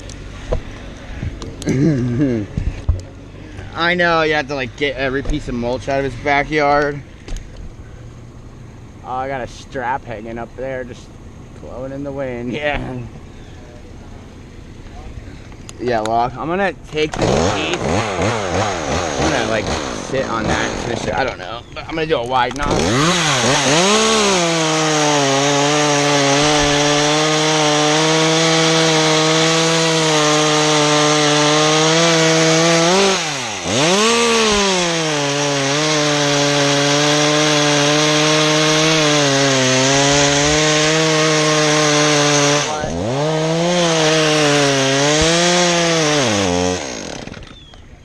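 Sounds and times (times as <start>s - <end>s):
chainsaw cutting wood: 17.0s - 21.4s, 22.5s - 47.8s.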